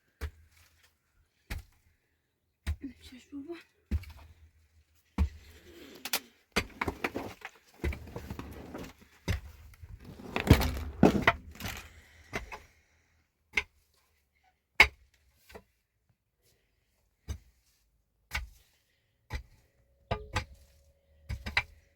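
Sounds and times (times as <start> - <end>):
hard objects clattering: 6.7 - 12.3.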